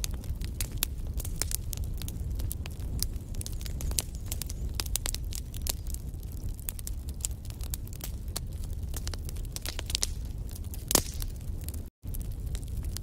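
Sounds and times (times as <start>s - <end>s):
low rumble of flames: 0.0s - 13.0s
wood fire crackling and snapping: 0.0s - 13.0s.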